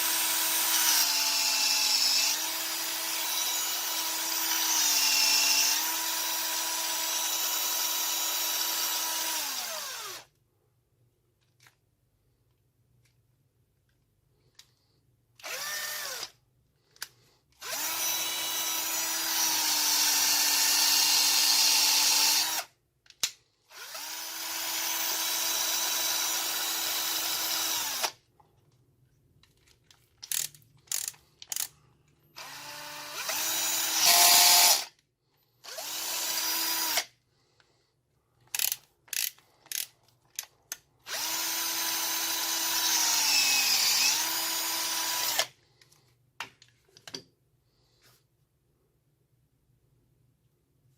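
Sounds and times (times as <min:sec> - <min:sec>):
cordless drill running: 0:00.0 - 0:10.3, 0:15.4 - 0:16.3, 0:17.6 - 0:22.7, 0:23.7 - 0:28.2, 0:32.4 - 0:34.9, 0:35.6 - 0:37.1, 0:41.1 - 0:45.5
drill clicks: 0:15.4 - 0:16.4, 0:30.2 - 0:31.8, 0:38.5 - 0:45.6.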